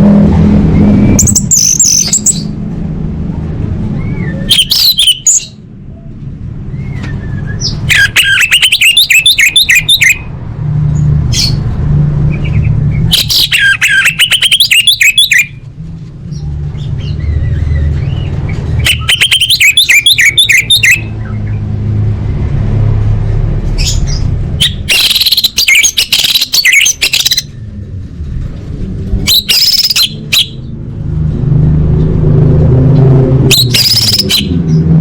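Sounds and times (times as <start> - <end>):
thrush calling harsh notes: 7.9 - 10.4, 12.3 - 15.6, 17.0 - 21.5, 23.8 - 27.6, 29.2 - 30.7
steady low hum: 26.9 - 29.5.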